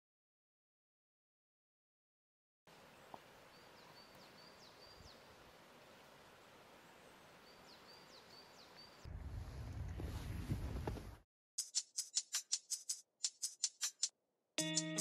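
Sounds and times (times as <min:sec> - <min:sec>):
steady outdoor hiss: 0:02.7 - 0:09.4
small bird singing: 0:03.5 - 0:05.3, 0:07.4 - 0:09.1.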